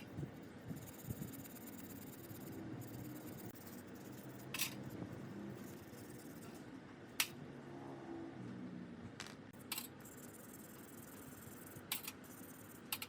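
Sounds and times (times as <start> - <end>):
steady low hum: 0.0 - 13.0
small hard parts clicking: 11.9 - 12.2.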